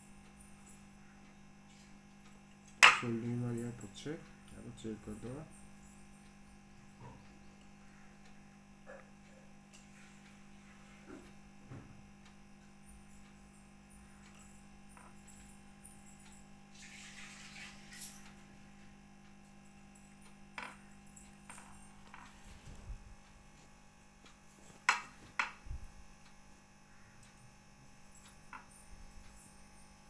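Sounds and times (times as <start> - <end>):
low electrical hum: 0.0 - 30.0
clicks and taps of small tools: 24.7 - 25.6.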